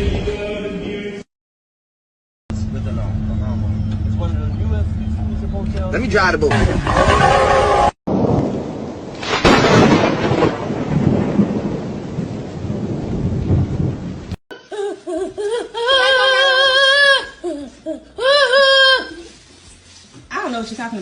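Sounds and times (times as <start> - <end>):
thunder peal: 6.5 - 14.4.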